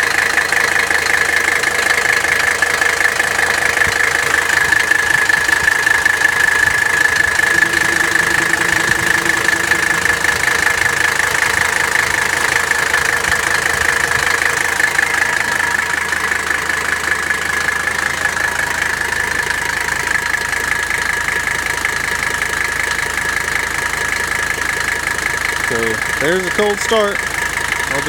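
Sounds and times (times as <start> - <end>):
diesel car engine idling: 0.0 - 28.0
high-pitched whine: 6.8 - 13.5.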